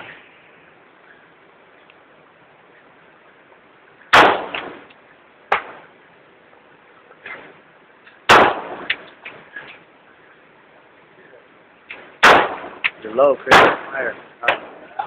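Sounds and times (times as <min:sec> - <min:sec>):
sharp crack: 0:04.0 - 0:06.0, 0:07.2 - 0:09.9, 0:11.8 - 0:15.0
loud gunshots with echo: 0:04.1 - 0:04.8, 0:08.3 - 0:08.9, 0:12.2 - 0:12.8, 0:13.5 - 0:14.7.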